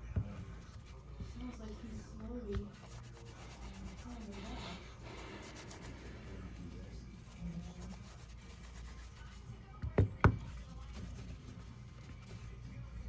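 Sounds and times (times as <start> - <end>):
faint handling noise: 0.0 - 7.6.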